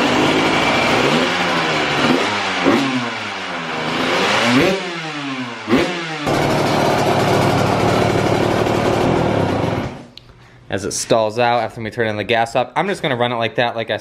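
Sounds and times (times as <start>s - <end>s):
pit bike engine idling and revving: 0.0s - 10.1s.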